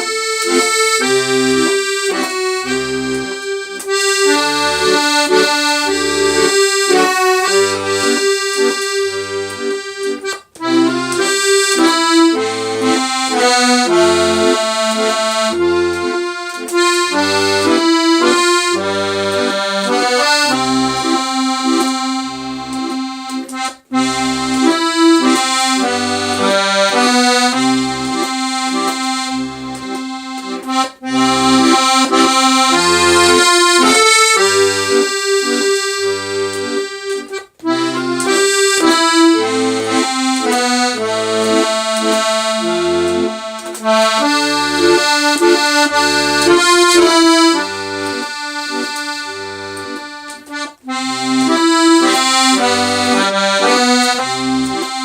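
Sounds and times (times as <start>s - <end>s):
accordion melody: 0.0s - 55.0s.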